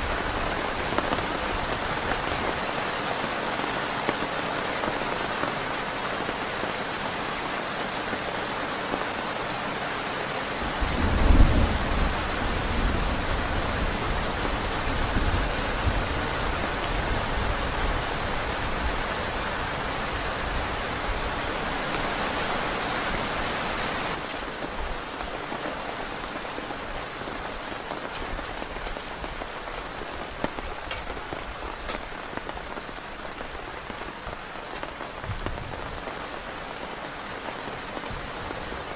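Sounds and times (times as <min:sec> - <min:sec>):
heavy rain falling: 0:00.0 - 0:38.9
raindrops striking: 0:00.0 - 0:38.9
thunder rumbling: 0:10.6 - 0:19.3.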